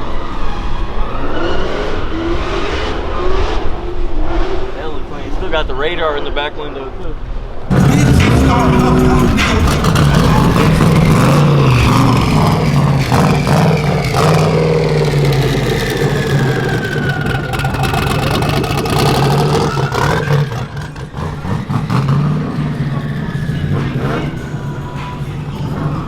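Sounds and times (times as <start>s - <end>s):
car engine running: 7.7s - 26.0s.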